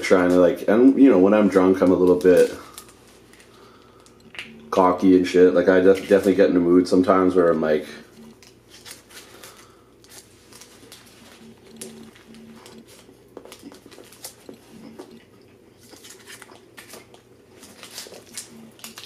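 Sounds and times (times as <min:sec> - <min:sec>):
paper wrapper rustling: 0:01.4 - 0:04.2, 0:05.7 - 0:06.4, 0:08.4 - 0:14.6, 0:15.8 - 0:19.0
biting and chewing: 0:08.2 - 0:19.0.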